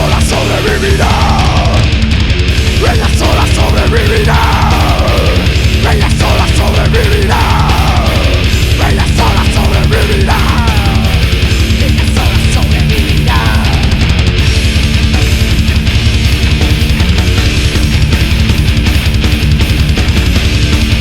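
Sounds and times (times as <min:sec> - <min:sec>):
bass guitar: 0:00.0 - 0:21.0
distorted guitars: 0:00.0 - 0:21.0
fast drums: 0:00.0 - 0:21.0.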